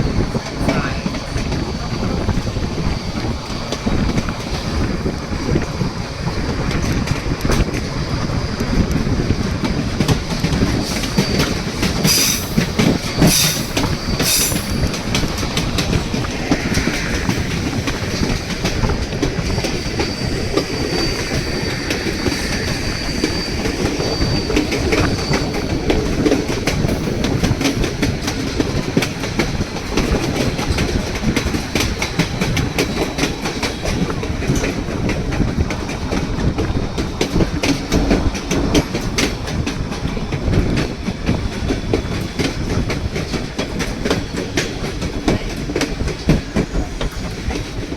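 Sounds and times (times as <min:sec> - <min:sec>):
train rumble: 0:00.0 - 0:47.9
wheels clacking over rail joints: 0:00.0 - 0:47.9
high wheel squeal: 0:10.7 - 0:15.1, 0:19.3 - 0:27.2.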